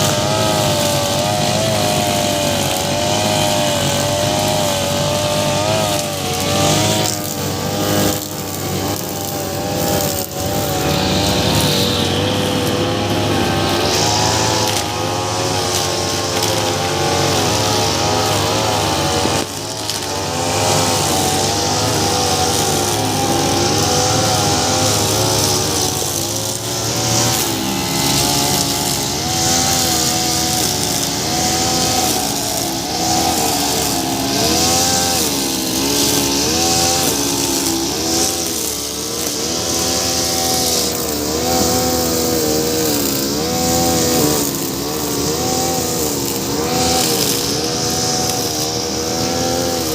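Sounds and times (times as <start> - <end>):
brush cutter engine running: 0.0 - 49.9.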